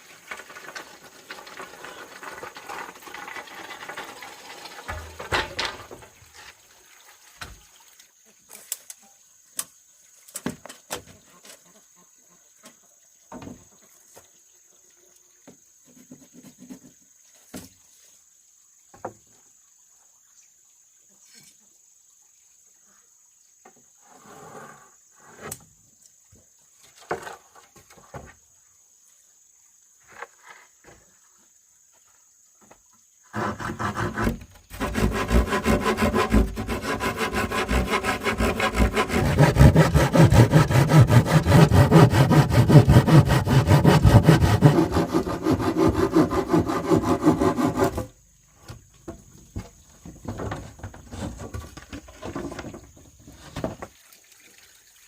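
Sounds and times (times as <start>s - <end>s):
saw cutting through bamboo: 33.3s - 48.1s.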